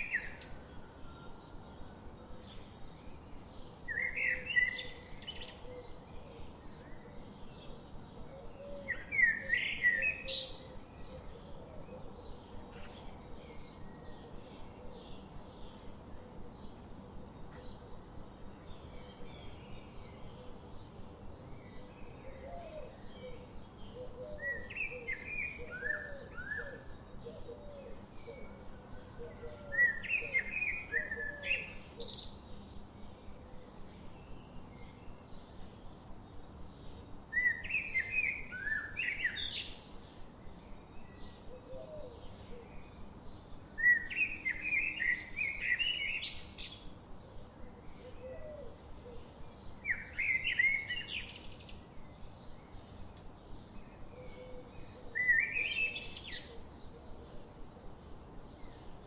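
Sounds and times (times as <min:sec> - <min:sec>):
background hiss: 0:00.0 - 0:59.0
bird singing: 0:00.0 - 0:59.0
fainter lower bird calls: 0:40.7 - 0:57.6.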